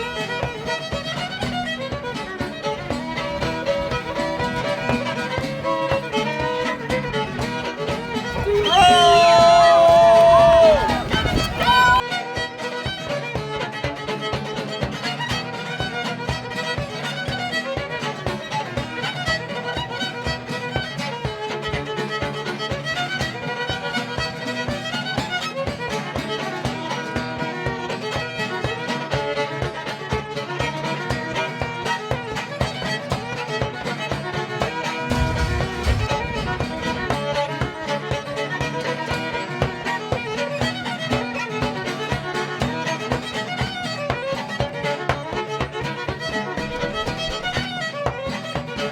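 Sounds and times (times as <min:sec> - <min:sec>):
fiddle playing lively tune: 0:00.0 - 0:48.9
strummed string accompaniment: 0:00.0 - 0:48.9
low rumble bump on microphone: 0:10.3 - 0:12.0, 0:35.0 - 0:38.3.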